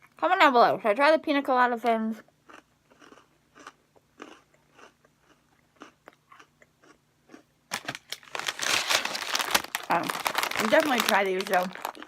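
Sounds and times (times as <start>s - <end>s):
cookie crunching while chewing: 2.5s - 12.0s
crinkling rustle: 7.7s - 12.0s.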